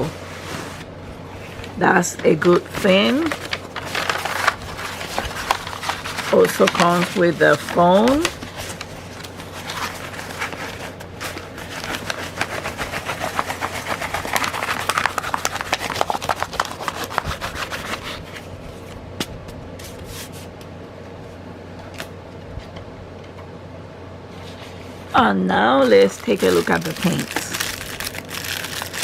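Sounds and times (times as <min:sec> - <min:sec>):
plastic packaging crinkling: 0:01.6 - 0:18.3, 0:25.8 - 0:29.0.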